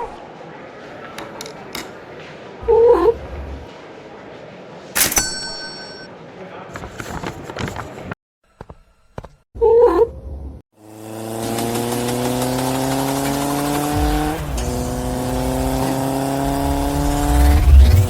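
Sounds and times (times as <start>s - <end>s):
engine accelerating: 10.8s - 18.0s.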